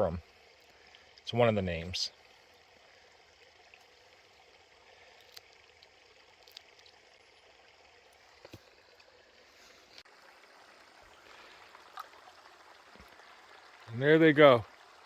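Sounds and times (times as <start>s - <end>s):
stream flowing: 0.0s - 15.0s.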